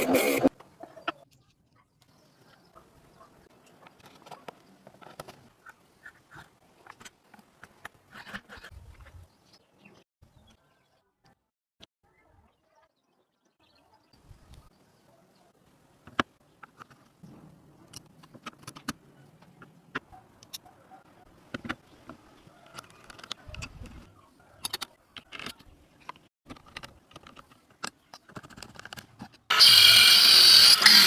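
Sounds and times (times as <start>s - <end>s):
clicks and knocks of parts: 16.1s - 20.6s, 21.5s - 24.0s, 24.6s - 29.5s
mini saw motor running: 29.5s - 31.0s.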